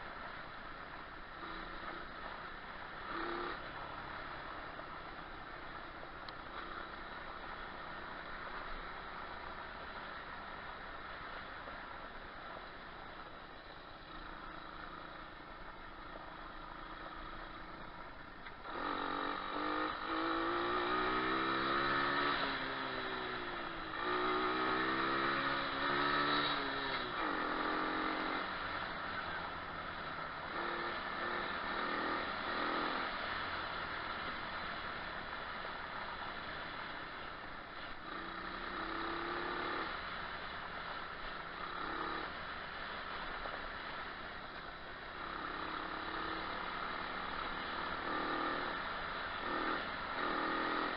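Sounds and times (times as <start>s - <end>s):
motorbike engine revving: 1.4s - 4.2s, 18.6s - 33.4s, 37.8s - 40.1s, 41.3s - 43.9s, 45.1s - 50.9s.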